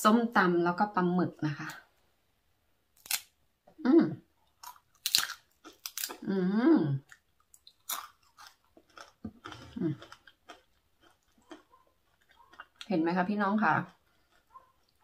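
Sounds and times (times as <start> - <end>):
person chewing crunchy food: 4.4 - 6.3, 7.0 - 12.9, 13.8 - 15.0
woman speaking with mouth full: 6.2 - 7.1, 12.8 - 14.0.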